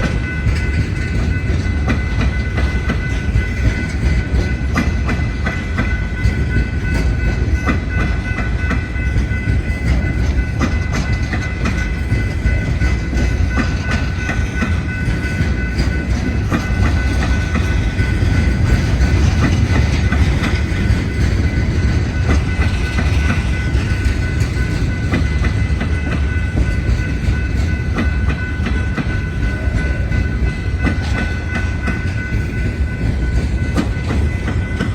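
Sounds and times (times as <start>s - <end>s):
train cars rumbling past: 0.0s - 34.9s.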